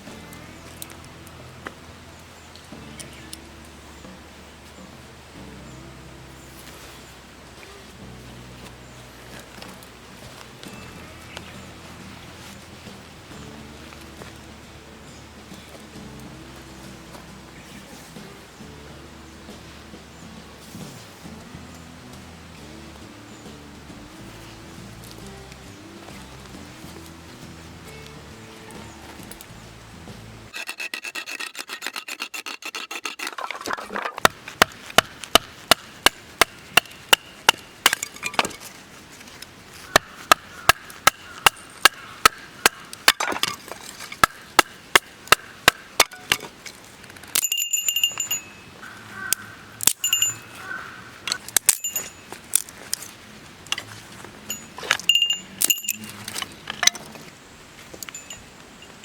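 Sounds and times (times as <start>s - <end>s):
scraping: 23.0s - 59.0s
short ringing clinks: 47.3s - 48.8s, 49.9s - 50.6s, 51.5s - 52.4s, 54.4s - 57.1s, 58.0s - 59.0s.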